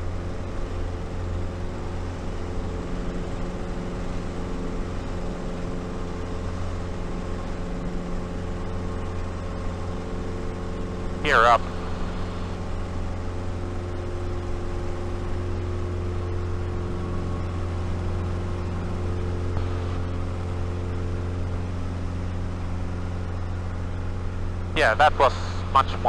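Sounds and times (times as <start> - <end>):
propeller aircraft engine drone: 0.0 - 26.0.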